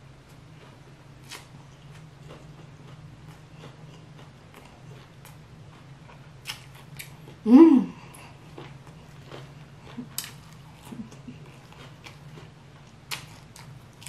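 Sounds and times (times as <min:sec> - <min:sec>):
faint low hum: 0:00.0 - 0:14.0
chewing with mouth closed: 0:08.0 - 0:14.0.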